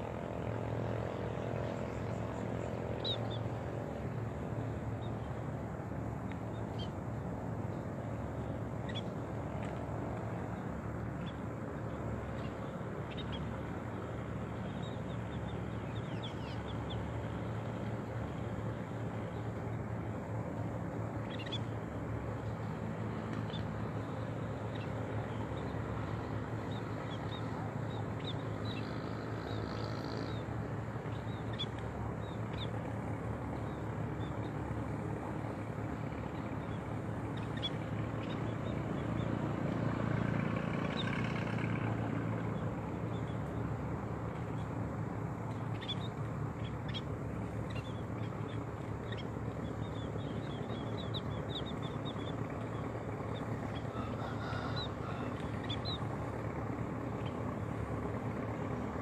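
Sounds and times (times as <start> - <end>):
steady low hum: 0.0 - 59.0
small birds chirping: 8.4 - 9.7, 10.4 - 19.9, 21.1 - 39.4, 45.5 - 57.8.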